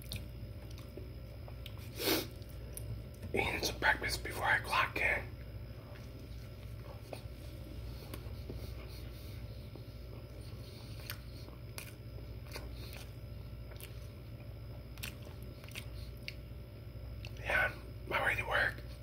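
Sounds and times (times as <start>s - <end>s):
man chewing with mouth clicks: 0.0s - 3.3s, 5.9s - 17.4s
steady low hum: 0.0s - 19.0s.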